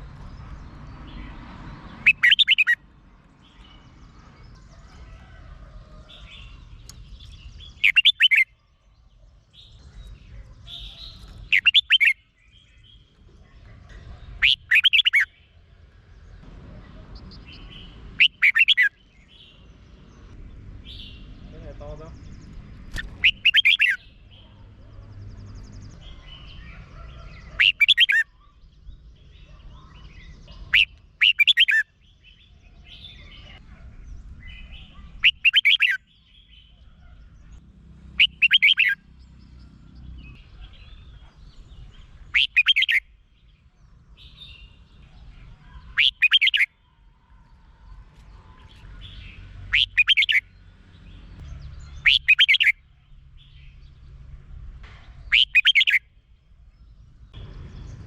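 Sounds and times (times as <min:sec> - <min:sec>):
bird song phrases: 0:00.0 - 0:58.0
faint bird chirps: 0:03.5 - 0:15.6, 0:20.9 - 0:33.8, 0:38.2 - 0:43.1, 0:44.2 - 0:50.5, 0:51.8 - 0:52.8, 0:55.2 - 0:56.1.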